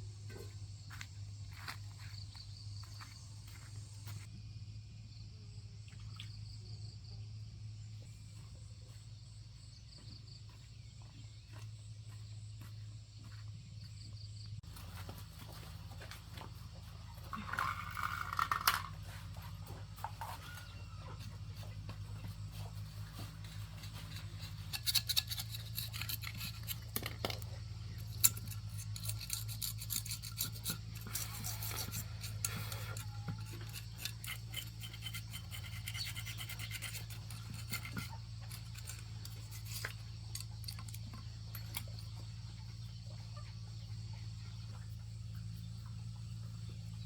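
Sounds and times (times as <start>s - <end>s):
scraping and scrubbing: 14.6s - 42.0s.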